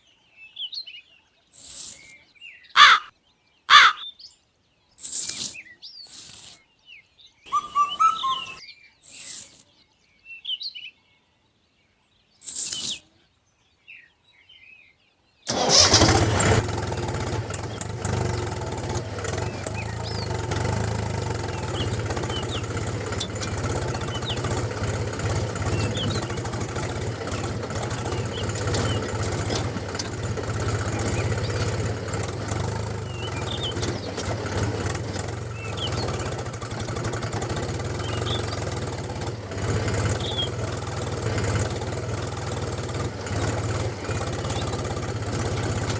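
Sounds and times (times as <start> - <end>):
birds chirping: 0.0 - 11.2, 12.2 - 14.9, 15.5 - 45.9
engine humming: 15.5 - 45.9.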